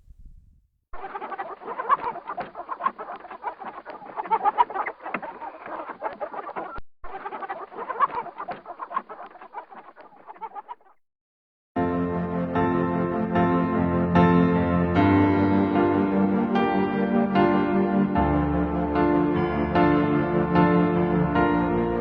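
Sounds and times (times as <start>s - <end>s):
flock of fowl clucking: 1.0s - 10.9s.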